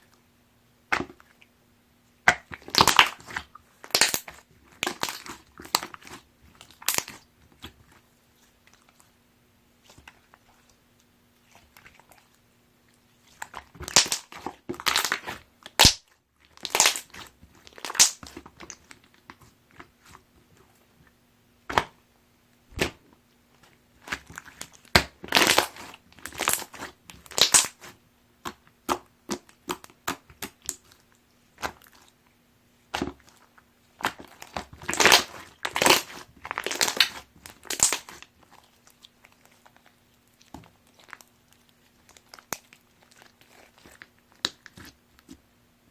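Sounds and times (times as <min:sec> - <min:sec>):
slime crackling and popping: 0:02.3 - 0:07.8, 0:13.3 - 0:19.9, 0:24.0 - 0:32.1, 0:32.9 - 0:45.4.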